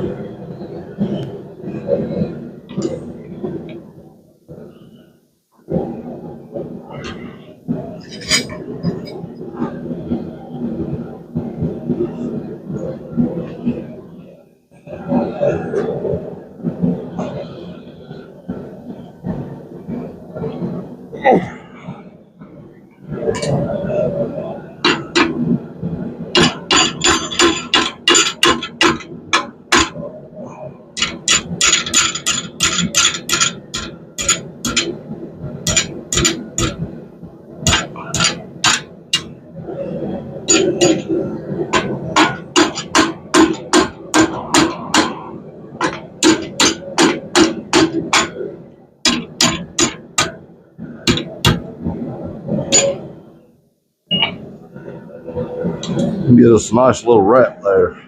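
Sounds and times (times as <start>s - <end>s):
hammer striking steel on anvil: 31.0s - 34.9s, 35.7s - 36.8s, 37.7s - 39.3s, 41.7s - 45.2s, 45.8s - 48.4s, 49.1s - 50.4s.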